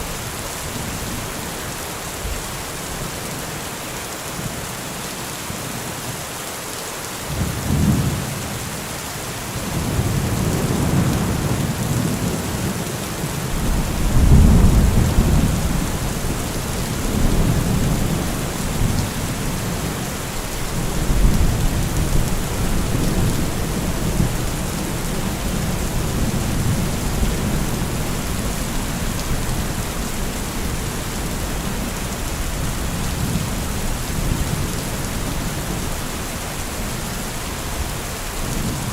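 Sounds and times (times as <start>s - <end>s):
heavy rain: 0.0s - 38.9s
rolling thunder: 13.5s - 20.0s.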